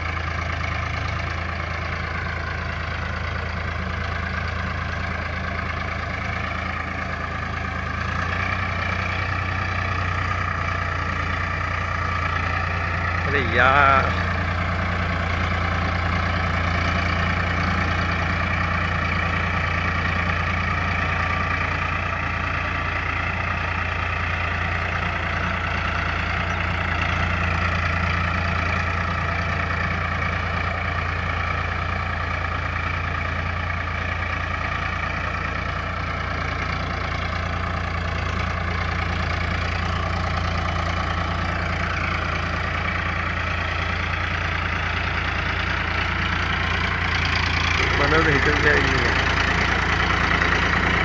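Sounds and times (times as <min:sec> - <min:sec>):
tractor diesel engine running: 0:00.0 - 0:51.0.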